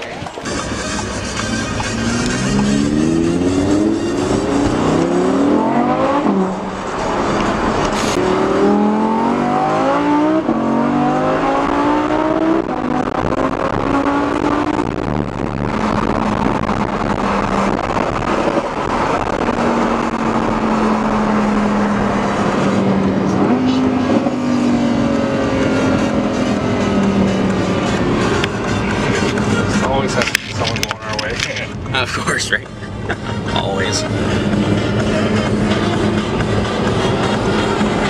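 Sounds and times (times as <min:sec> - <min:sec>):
car engine accelerating through gears: 0:00.0 - 0:31.1, 0:31.7 - 0:38.0.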